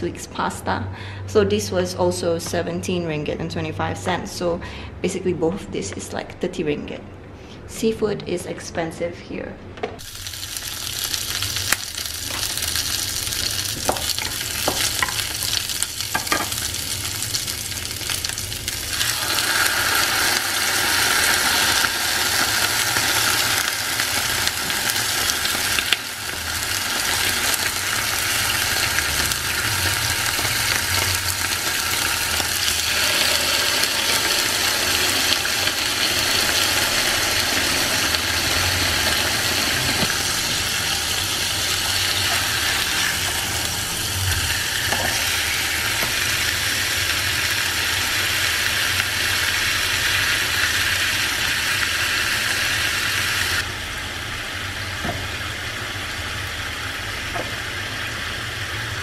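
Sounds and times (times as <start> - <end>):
fish sizzling in hot pan: 10.0 - 54.0
aromatics sizzling in oil: 10.0 - 59.0.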